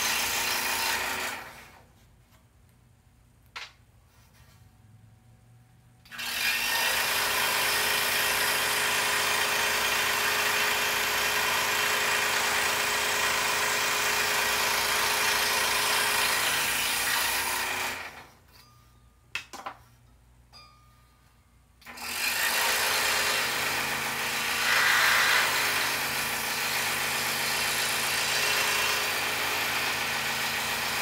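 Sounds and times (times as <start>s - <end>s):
scroll saw cutting wood: 0.0s - 1.8s, 6.1s - 18.3s, 21.9s - 31.0s.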